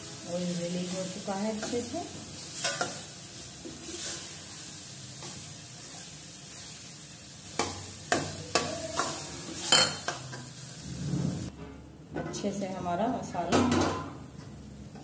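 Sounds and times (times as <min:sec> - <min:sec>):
paste sizzling in oil: 0:00.0 - 0:11.5.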